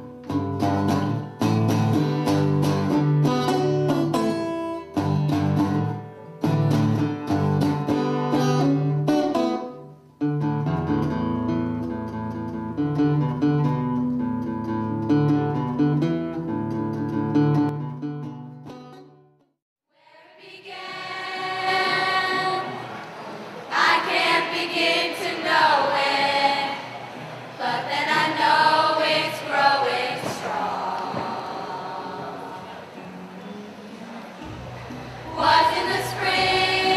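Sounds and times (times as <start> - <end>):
acoustic guitar: 0.0 - 19.5, 20.7 - 36.9
group of voices singing: 20.0 - 33.0, 35.1 - 36.9.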